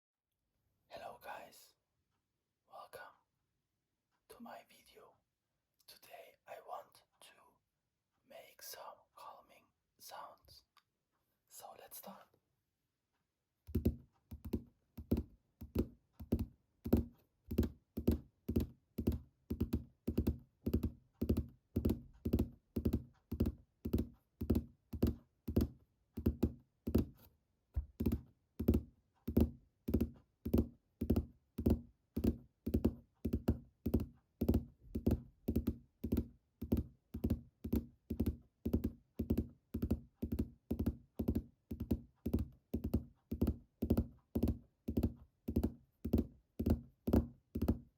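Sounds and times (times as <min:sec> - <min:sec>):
fingertips tapping on hard object: 0:13.7 - 0:47.9.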